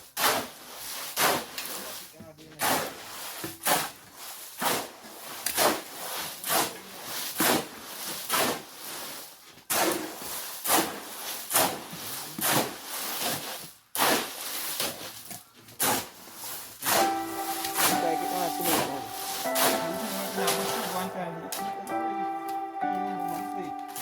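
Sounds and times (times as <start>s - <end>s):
shovel scraping wet concrete: 0.0s - 17.1s.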